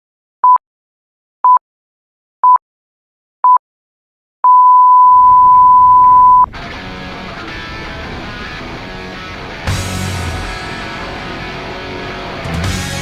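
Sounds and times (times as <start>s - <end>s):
electronic countdown beeps: 4.4s - 6.5s
low rumble: 5.2s - 12.0s.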